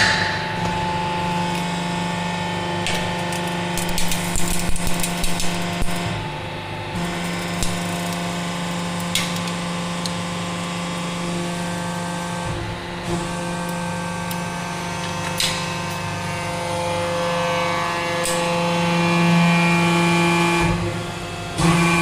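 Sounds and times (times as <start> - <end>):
hydraulic press humming: 0.0 - 3.2.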